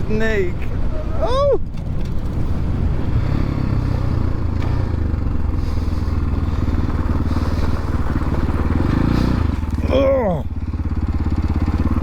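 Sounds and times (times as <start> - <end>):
dirt bike engine running: 2.2 - 12.0.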